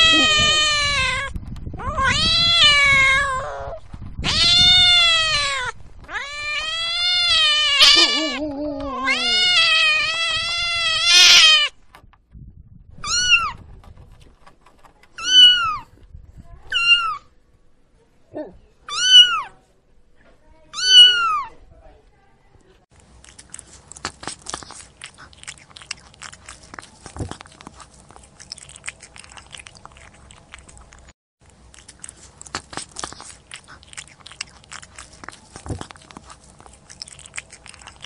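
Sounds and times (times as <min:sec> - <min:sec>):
cat meowing: 0:00.0 - 0:11.7, 0:13.0 - 0:13.6, 0:15.2 - 0:15.9, 0:16.7 - 0:17.3, 0:18.9 - 0:19.6, 0:20.7 - 0:21.5.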